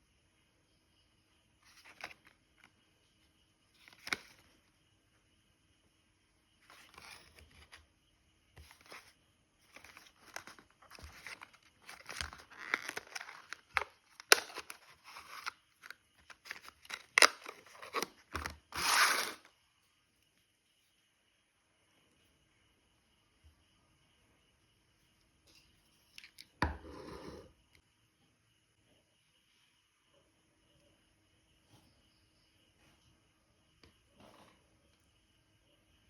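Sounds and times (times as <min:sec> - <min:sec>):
rustling and crinkling handling: 0:09.7 - 0:19.4.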